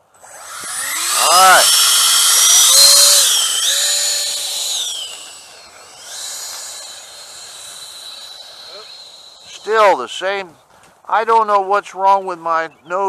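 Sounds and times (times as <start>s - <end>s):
electric ducted fans whining: 0.0s - 10.4s.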